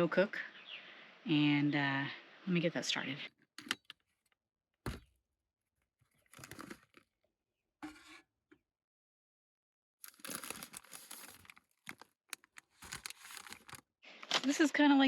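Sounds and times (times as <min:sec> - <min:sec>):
food packaging crinkling and tearing: 0:06.2 - 0:07.0, 0:10.0 - 0:13.8.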